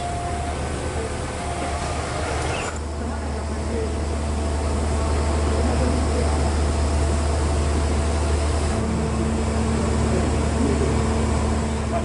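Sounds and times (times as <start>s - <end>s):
train carriage rumble: 0.0s - 12.0s.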